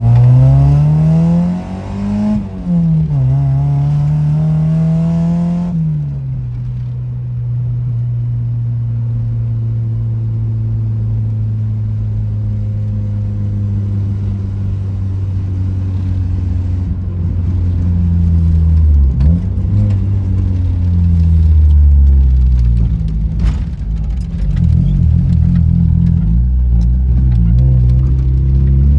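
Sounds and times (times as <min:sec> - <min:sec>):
car engine revving: 0:00.0 - 0:05.9, 0:13.2 - 0:28.9.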